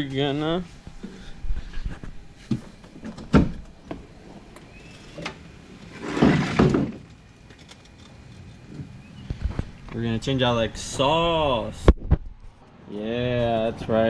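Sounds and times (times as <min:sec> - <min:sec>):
scraping rustle: 0:05.8 - 0:08.7.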